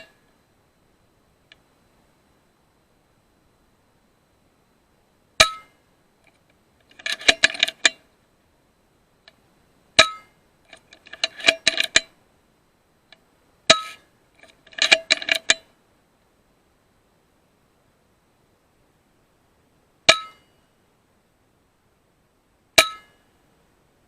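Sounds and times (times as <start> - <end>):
metallic clinks and rattles: 6.9 - 8.0, 10.7 - 12.1, 14.4 - 15.6.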